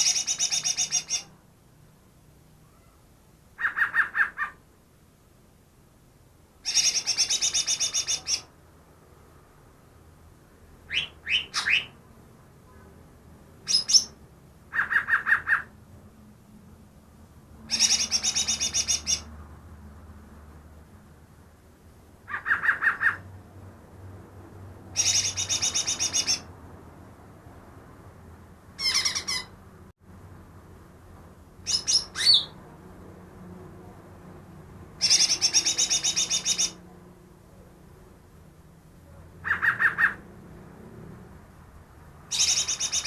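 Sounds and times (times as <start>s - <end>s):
bird singing trills and whistles: 0.0s - 1.3s, 6.7s - 8.5s, 10.9s - 12.0s, 13.7s - 14.2s, 17.7s - 19.3s, 25.0s - 26.5s, 31.7s - 32.6s, 35.0s - 36.8s, 42.3s - 43.0s.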